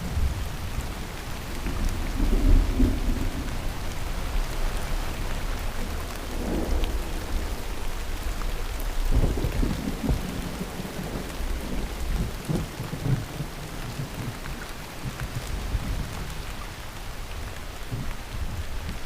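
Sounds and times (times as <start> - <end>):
rolling thunder: 0.0 - 4.4
heavy rain pouring: 0.0 - 19.0.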